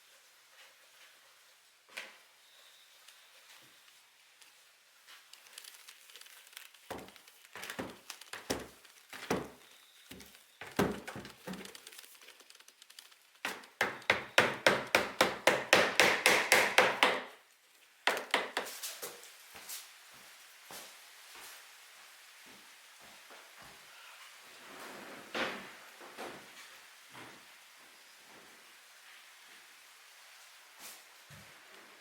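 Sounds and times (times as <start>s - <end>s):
knife chopping on wooden board: 13.5s - 17.3s.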